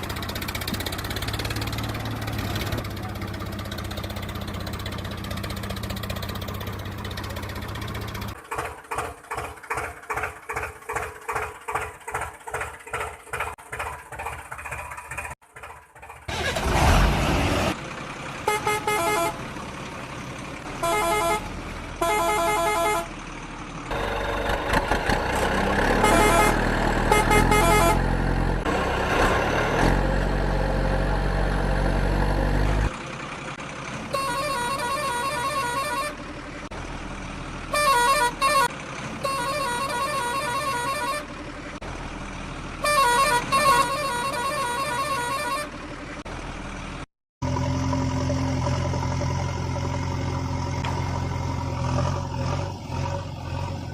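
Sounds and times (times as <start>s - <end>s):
engine chugging: 0.0s - 16.9s, 17.7s - 29.7s, 32.5s - 53.9s
vehicle horns honking: 18.4s - 19.4s, 20.7s - 23.1s, 25.9s - 28.1s, 34.1s - 36.2s, 37.7s - 41.4s, 42.8s - 45.8s.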